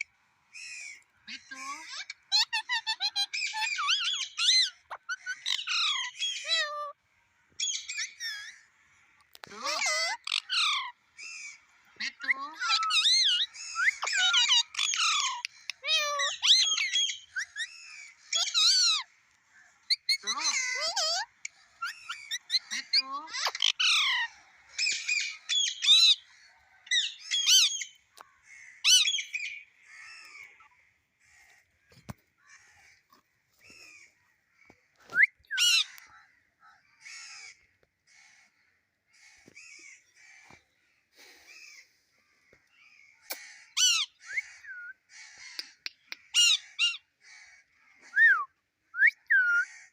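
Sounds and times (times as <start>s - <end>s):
parrot squawking and chattering: 0.6s - 7.0s, 9.4s - 19.1s, 19.8s - 26.3s, 26.9s - 30.9s, 35.2s - 36.3s, 43.3s - 47.2s, 48.1s - 49.8s.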